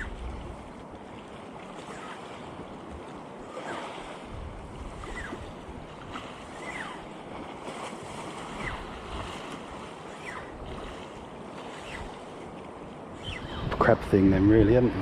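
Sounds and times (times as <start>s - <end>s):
sea surf washing against rocks: 0.0s - 15.0s
wind buffeting microphone: 0.0s - 15.0s.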